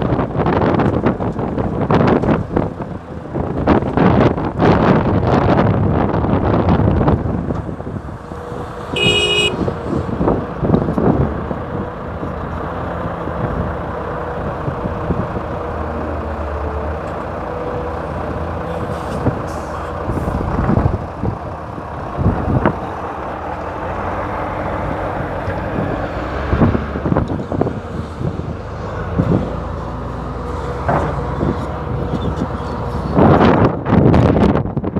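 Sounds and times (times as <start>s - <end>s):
excavator diesel engine running: 0.0s - 34.9s
short horn toot: 8.9s - 9.6s.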